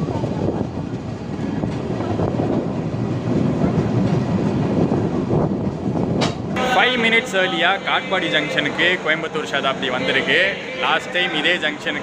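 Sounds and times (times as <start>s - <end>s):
train rumbling along track: 0.0s - 12.0s.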